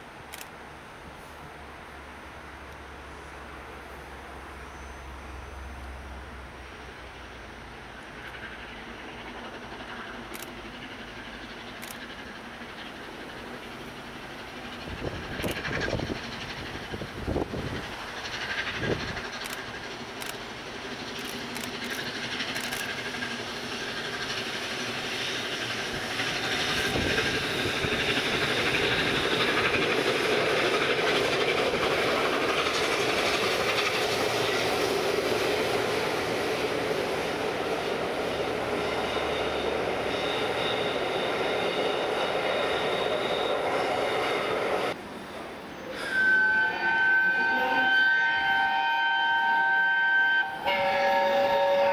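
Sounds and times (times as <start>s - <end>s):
train wheels on rails: 0.0s - 51.9s
high wheel squeal: 4.6s - 5.8s, 38.3s - 45.0s, 45.7s - 51.9s.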